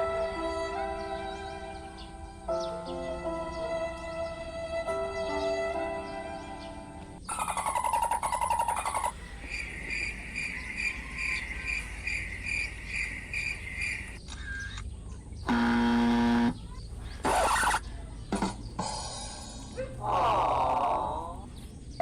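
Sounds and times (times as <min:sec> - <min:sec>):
bird chirping: 0:00.0 - 0:22.0
loud pitched hum: 0:15.5 - 0:17.8.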